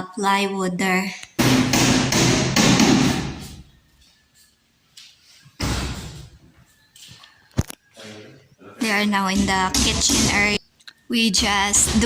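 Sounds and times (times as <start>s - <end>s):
rapid hammering on wood: 1.4s - 3.4s, 9.3s - 10.6s.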